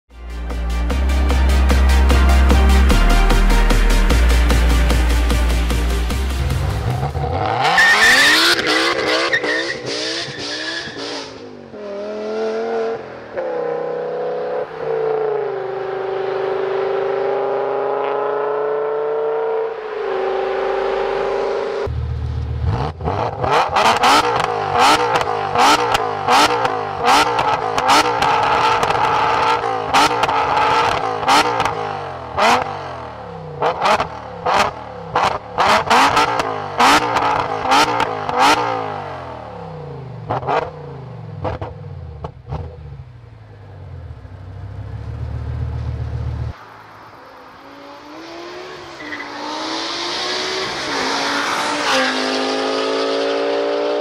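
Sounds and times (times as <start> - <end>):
car engine accelerating hard: 4.9 - 43.2, 44.1 - 54.0
exhaust cracks: 21.9 - 31.8.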